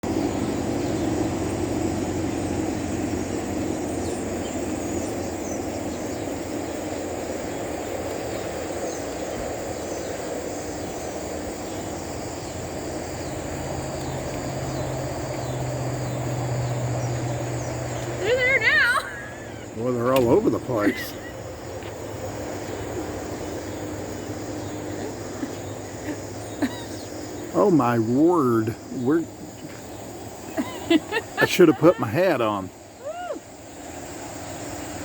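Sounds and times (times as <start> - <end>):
low engine drone: 0.0 - 8.2, 10.8 - 35.0
flock of small birds calling: 0.0 - 35.0
traffic rumble: 0.0 - 35.0.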